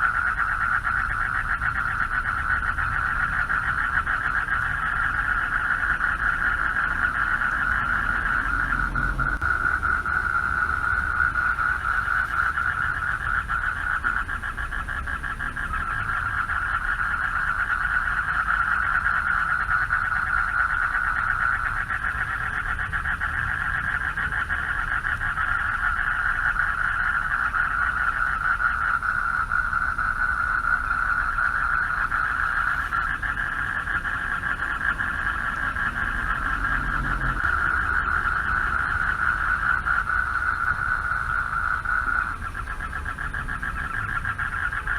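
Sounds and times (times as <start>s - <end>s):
chorus of frogs calling: 0.0s - 44.9s
low rumble: 6.8s - 13.4s.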